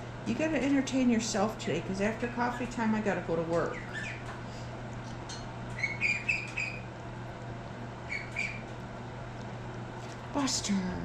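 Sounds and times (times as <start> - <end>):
steady low hum: 0.0 - 11.0
birds chirping: 3.7 - 4.3, 5.7 - 6.9, 8.0 - 8.8.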